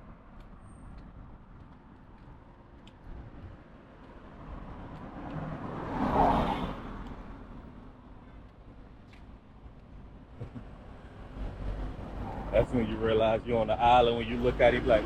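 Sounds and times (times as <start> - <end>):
vehicle passing by: 4.4 - 7.4.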